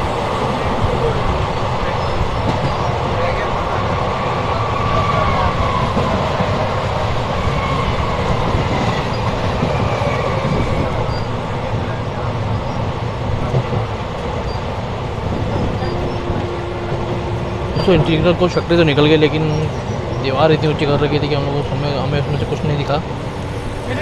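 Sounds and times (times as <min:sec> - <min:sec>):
electric train passing: 0:00.0 - 0:24.0
train wheels rattling over rails: 0:00.0 - 0:24.0.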